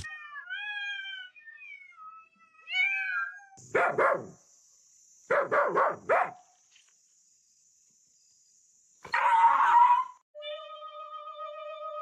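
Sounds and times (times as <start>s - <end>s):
dog barking: 3.7s - 4.4s, 5.3s - 6.4s.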